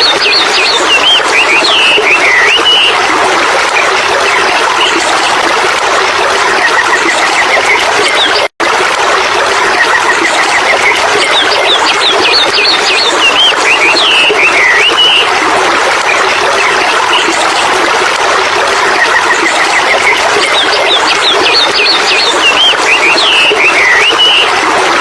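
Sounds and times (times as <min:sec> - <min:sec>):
birds chirping: 0:00.0 - 0:03.0, 0:10.7 - 0:15.3, 0:19.1 - 0:24.5
rushing stream water: 0:00.0 - 0:25.0.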